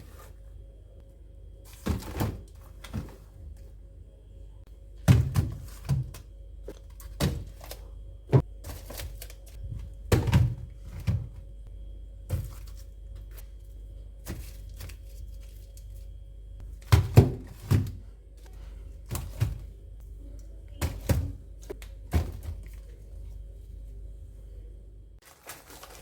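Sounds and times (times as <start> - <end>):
faint steady hum: 0.0 - 26.0
thuds and knocks of objects set down: 1.7 - 3.3, 20.8 - 22.8.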